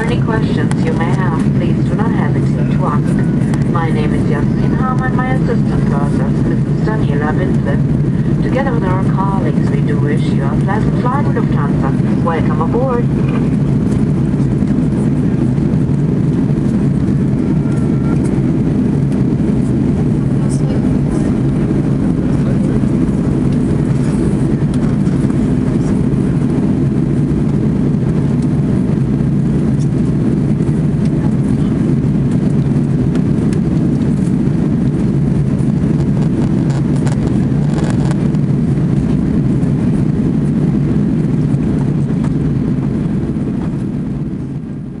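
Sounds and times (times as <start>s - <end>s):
aircraft cabin drone: 0.0s - 45.0s.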